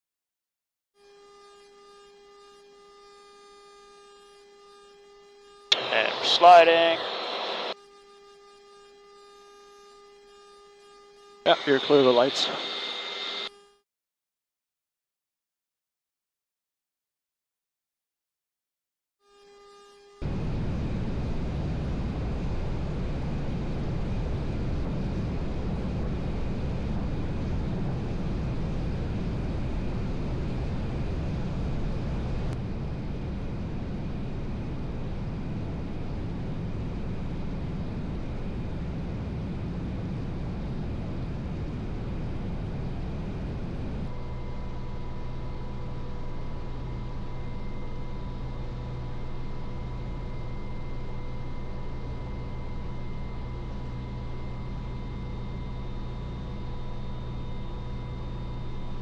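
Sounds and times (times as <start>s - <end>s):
steady whine: 5.6s - 7.8s, 11.3s - 13.5s, 20.2s - 59.0s
helicopter machine noise: 5.7s - 7.8s, 11.5s - 13.5s, 20.2s - 59.0s.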